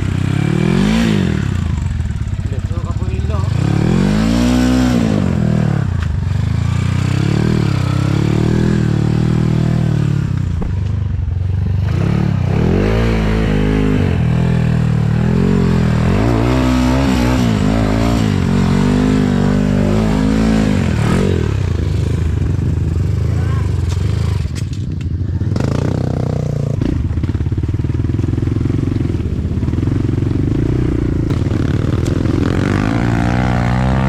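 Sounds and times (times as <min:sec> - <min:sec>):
dirt bike engine revving: 0:00.0 - 0:24.6, 0:25.4 - 0:27.5, 0:28.5 - 0:34.0.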